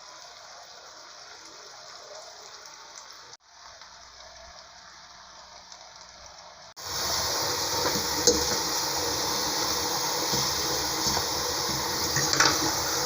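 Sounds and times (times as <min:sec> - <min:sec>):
water running into sink: 0:06.8 - 0:13.0
cookware clinking: 0:10.3 - 0:13.0.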